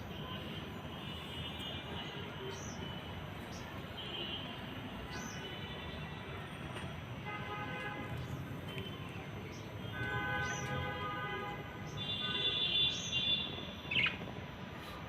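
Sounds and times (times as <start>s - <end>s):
small birds chirping: 0.9s - 5.9s, 8.1s - 10.8s, 11.8s - 14.3s.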